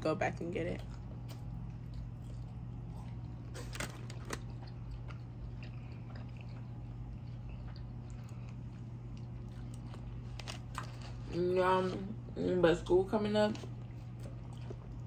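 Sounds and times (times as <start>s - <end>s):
steady low hum: 0.0s - 15.0s
person chewing food: 0.8s - 11.4s, 13.6s - 15.0s.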